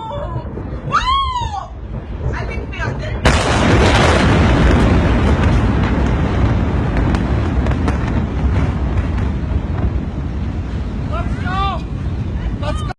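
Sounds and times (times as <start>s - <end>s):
explosion rumbling roar: 0.0s - 12.9s
sharp pops and crackles: 1.9s - 10.3s.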